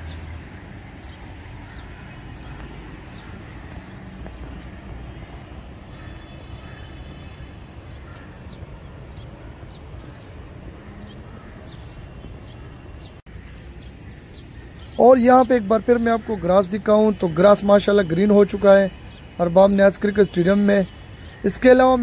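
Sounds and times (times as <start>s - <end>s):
falling bird chirps: 0.0s - 4.8s.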